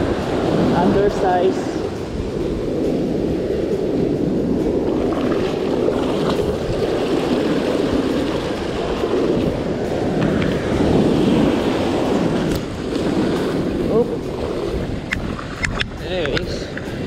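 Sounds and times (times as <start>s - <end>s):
surf rushing around legs: 0.0s - 17.0s
wind on microphone: 0.0s - 17.0s.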